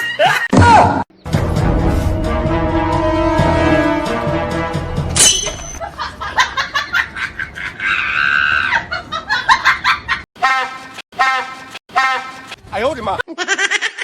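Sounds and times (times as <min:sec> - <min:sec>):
people laughing: 0:05.8 - 0:10.2
people screaming: 0:07.8 - 0:08.8.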